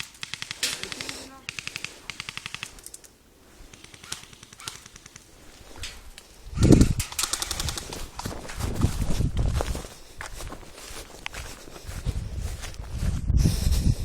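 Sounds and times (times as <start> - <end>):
airsoft rifle bursts: 0.0 - 5.3, 7.0 - 8.2.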